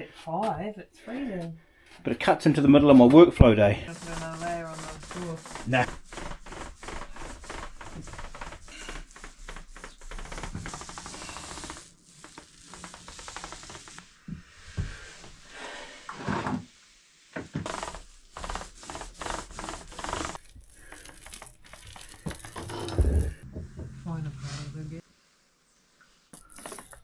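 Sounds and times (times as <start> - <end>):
paintbrush rubbing over surface: 3.9 - 15.6, 17.6 - 23.4, 26.4 - 27.0.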